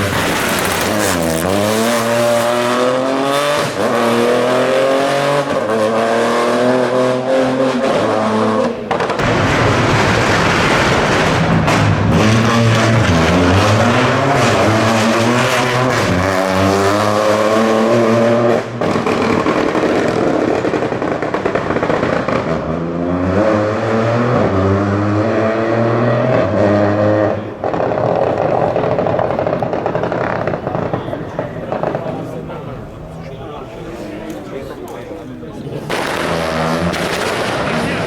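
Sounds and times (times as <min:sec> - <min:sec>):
rally car engine accelerating: 0:00.0 - 0:33.0, 0:35.8 - 0:38.0.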